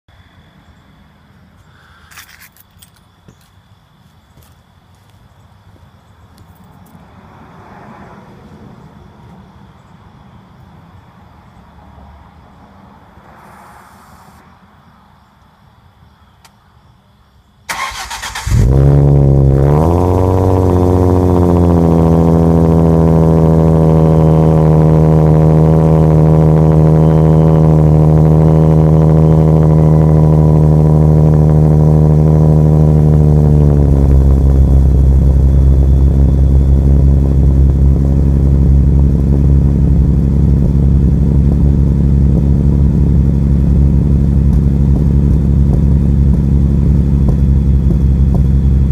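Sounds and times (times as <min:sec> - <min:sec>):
engine cranking: 0:17.7 - 0:18.8
car engine idling: 0:17.7 - 0:48.9.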